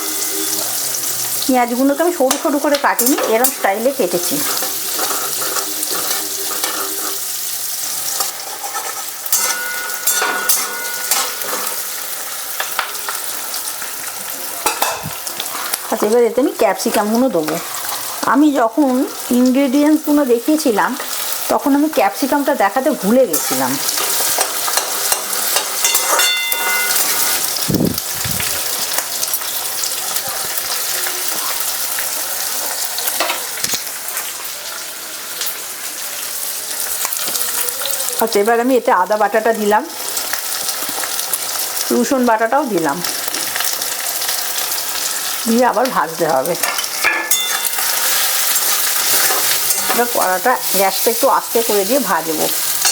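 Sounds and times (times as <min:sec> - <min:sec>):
onions sizzling in hot oil: 0:00.0 - 0:52.9
spatula scraping a pan: 0:02.2 - 0:13.4, 0:17.5 - 0:18.2, 0:23.3 - 0:27.6, 0:46.7 - 0:51.2.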